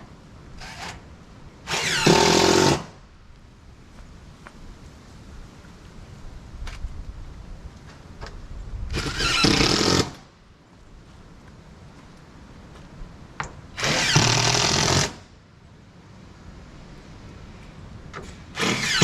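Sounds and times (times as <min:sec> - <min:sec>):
power drill running: 0:01.7 - 0:02.9, 0:09.0 - 0:10.2, 0:13.8 - 0:15.2, 0:18.6 - 0:19.0.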